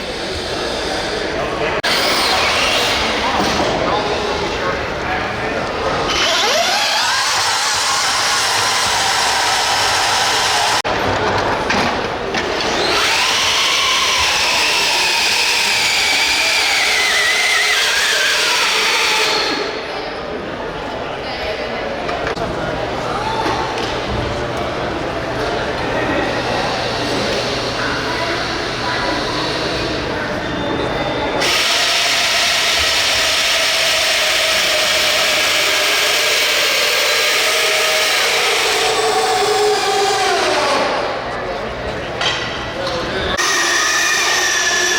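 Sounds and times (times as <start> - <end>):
electric motor and gears whining: 6.0 - 10.9, 12.6 - 19.8, 31.4 - 41.2, 43.4 - 44.9.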